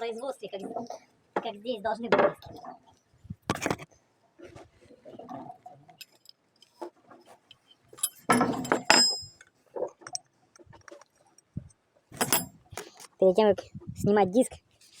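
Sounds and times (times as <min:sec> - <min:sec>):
metal hand tools clinking: 0:08.0 - 0:09.4, 0:12.2 - 0:12.6
metallic ring: 0:08.0 - 0:09.4, 0:12.2 - 0:12.6.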